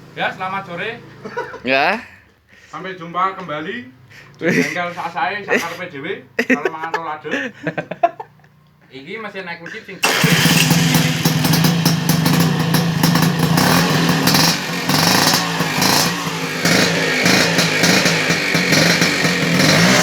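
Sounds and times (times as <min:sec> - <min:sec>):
two-stroke scooter engine running: 0:10.0 - 0:20.0.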